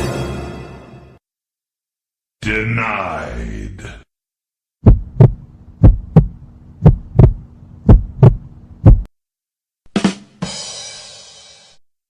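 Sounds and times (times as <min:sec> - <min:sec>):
heartbeat thumps: 0:04.8 - 0:09.1.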